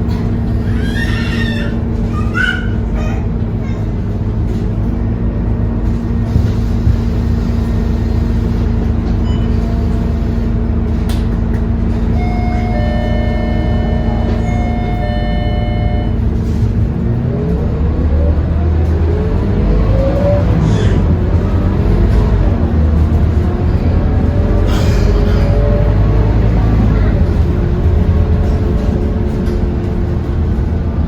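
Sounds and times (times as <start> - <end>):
bus engine idling: 0.0 - 31.0
bus engine rising in pitch: 11.8 - 31.0.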